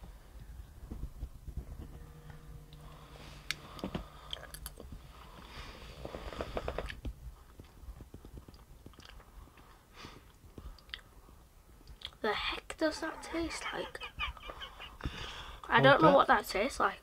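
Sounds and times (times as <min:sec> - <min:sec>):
faint chewing: 0:06.2 - 0:11.1.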